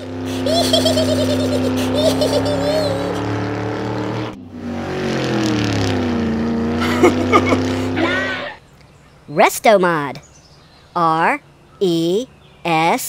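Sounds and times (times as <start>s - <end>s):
car engine starting: 0.0s - 9.1s
car engine running: 0.0s - 9.3s.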